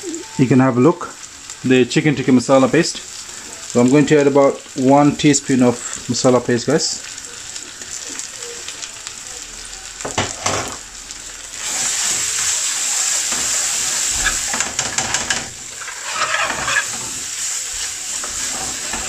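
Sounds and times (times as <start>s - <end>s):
food sizzling in a pan: 0.0s - 19.0s
metal spoon stirring: 14.1s - 17.2s.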